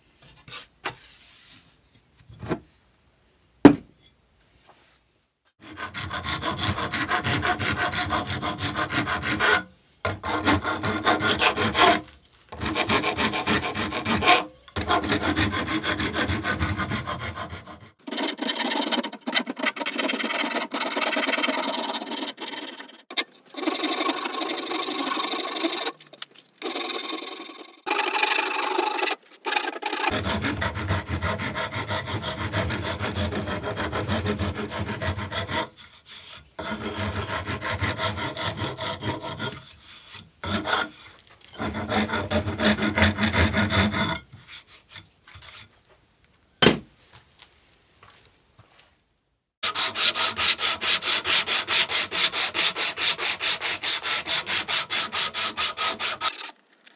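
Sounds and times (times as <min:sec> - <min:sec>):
abrasive rubbing strokes: 0:18.0 - 0:30.1, 0:56.2 - 0:56.9.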